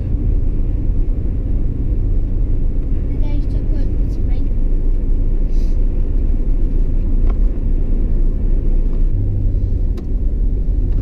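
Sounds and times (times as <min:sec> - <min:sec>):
low hum: 0:00.0 - 0:11.0
truck engine and road noise: 0:00.0 - 0:11.0.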